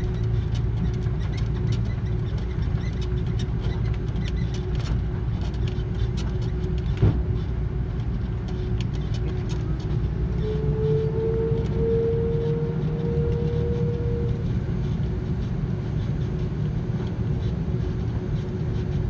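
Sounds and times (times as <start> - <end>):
small rattles and clicks: 0.0 - 11.0
aircraft cabin rumble: 0.0 - 19.0.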